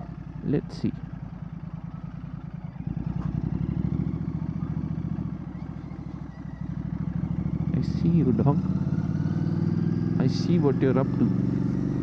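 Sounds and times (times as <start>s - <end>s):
motorcycle engine grumbling: 0.0s - 12.0s.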